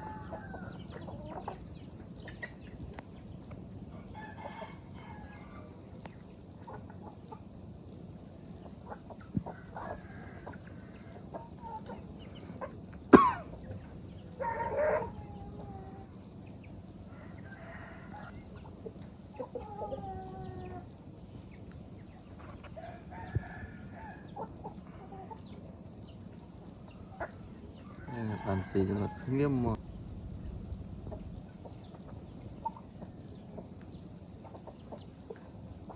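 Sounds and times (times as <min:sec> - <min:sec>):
rooster crowing: 0:00.0 - 0:00.9, 0:04.0 - 0:05.7, 0:17.1 - 0:18.4, 0:22.8 - 0:24.4, 0:27.8 - 0:29.8
chickens clucking: 0:00.0 - 0:29.8, 0:31.0 - 0:35.9.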